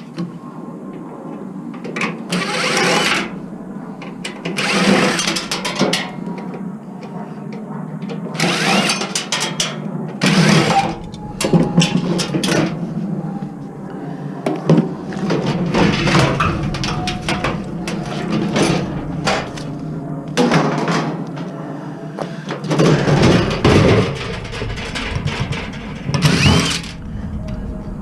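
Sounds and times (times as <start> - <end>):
cordless drill motor whine: 2.3 - 3.4, 26.2 - 26.9.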